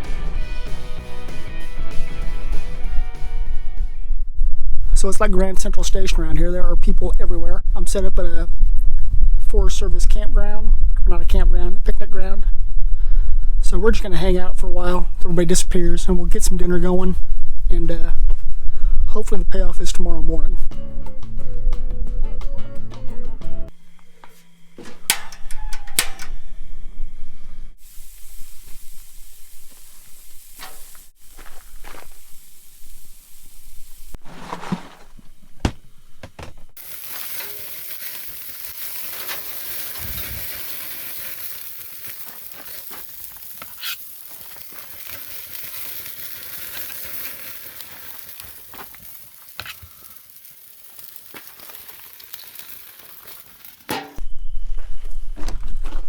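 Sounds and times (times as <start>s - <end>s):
burger patties sizzling: 27.8s - 54.0s.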